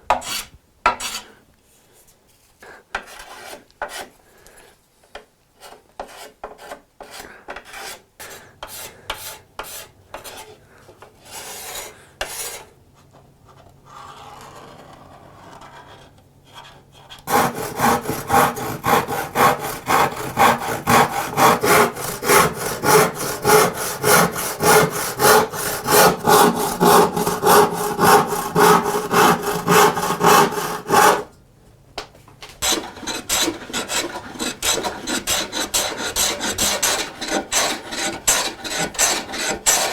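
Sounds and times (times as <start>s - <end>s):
hand tool strokes on wood: 17.3s - 31.3s.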